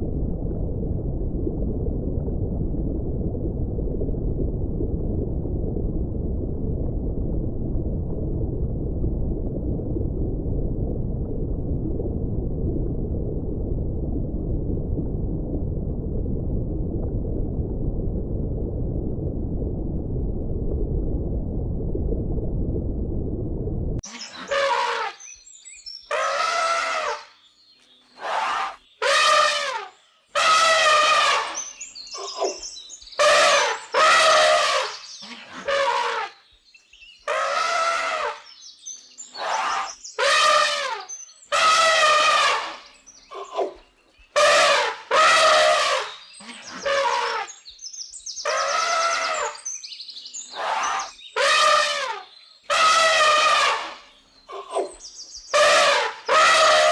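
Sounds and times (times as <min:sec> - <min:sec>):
low rumble: 0:00.0 - 0:24.0.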